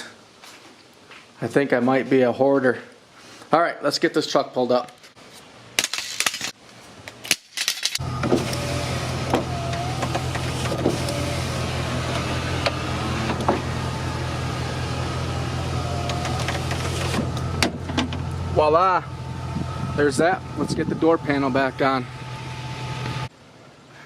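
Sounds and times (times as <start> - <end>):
pickup truck engine idling: 8.0 - 23.3.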